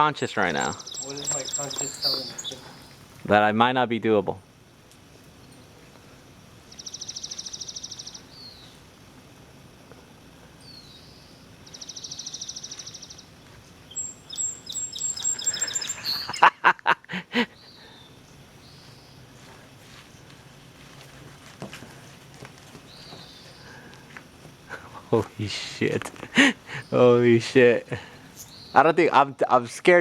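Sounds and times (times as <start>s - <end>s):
songbird trilling: 0.0s - 3.0s, 6.7s - 8.8s, 10.6s - 13.3s, 13.9s - 16.5s, 28.3s - 28.9s
faint background hiss: 0.0s - 30.0s.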